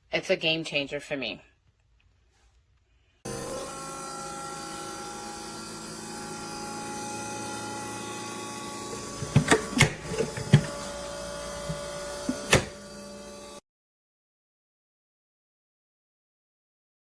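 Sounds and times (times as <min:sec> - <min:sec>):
compressor fridge humming: 0:03.3 - 0:13.6
sharp knocks and clicks: 0:09.2 - 0:10.9.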